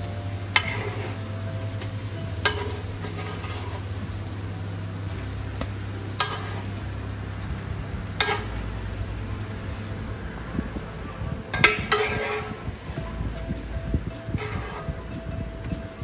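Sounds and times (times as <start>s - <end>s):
fritters sizzling in oil: 0.0s - 16.0s
spatula clicking and scraping: 14.1s - 15.8s.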